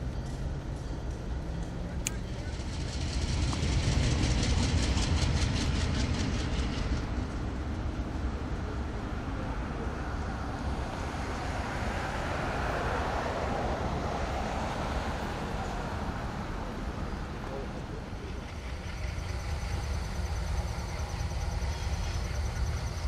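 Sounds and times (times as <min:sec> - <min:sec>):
diesel train rumble: 0:00.0 - 0:23.0.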